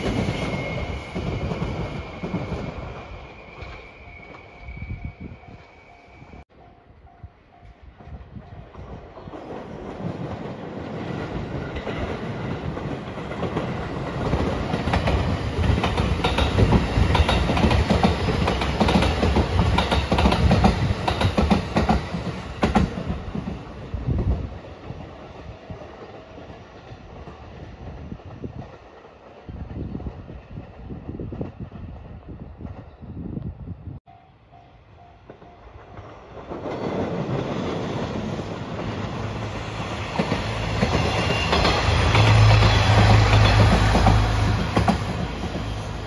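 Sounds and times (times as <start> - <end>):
train wheels clacking on rails: 7.2 - 31.8, 35.0 - 46.0.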